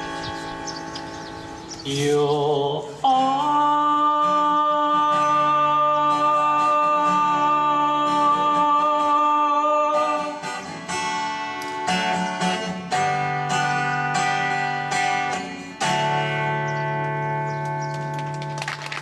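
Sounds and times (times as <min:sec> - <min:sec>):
acoustic guitar strumming: 0:00.0 - 0:18.7.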